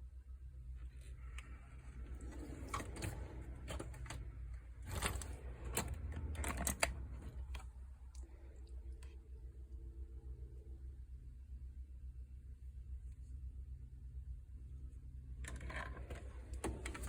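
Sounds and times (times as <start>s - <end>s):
steady low hum: 0.0s - 17.0s
metal tools clicking and clattering: 4.8s - 7.6s.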